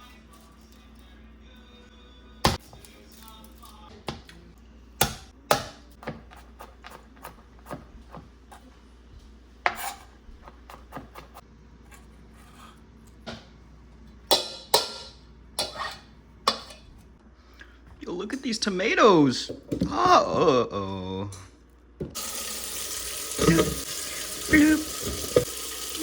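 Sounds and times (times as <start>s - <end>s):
kitchenware clattering: 14.3s - 17.0s, 23.3s - 26.0s
dishes and utensils clinking: 23.4s - 25.5s.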